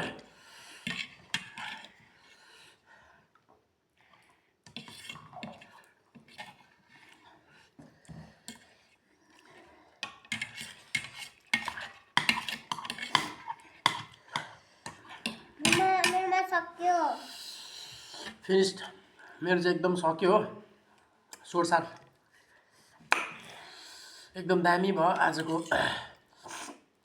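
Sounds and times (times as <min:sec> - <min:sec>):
cutlery clinking against bowls: 0:10.0 - 0:16.2.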